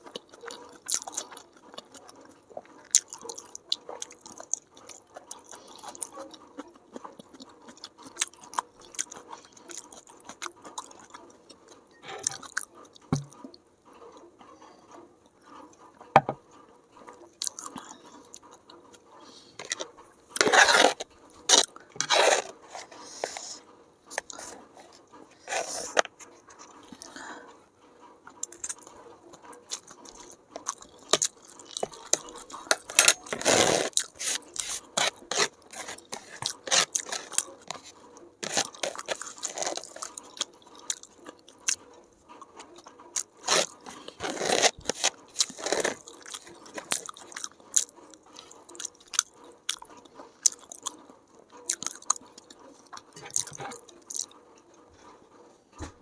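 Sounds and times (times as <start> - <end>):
chewing noodles: 0.0 - 15.8, 17.0 - 27.5, 28.2 - 54.7.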